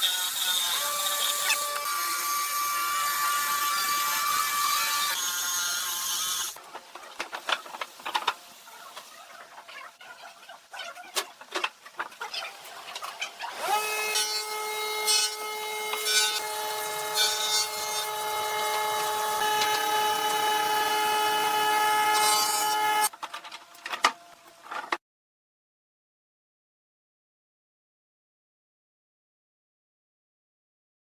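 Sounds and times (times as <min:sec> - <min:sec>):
power tool motor whining: 0:13.5 - 0:23.1.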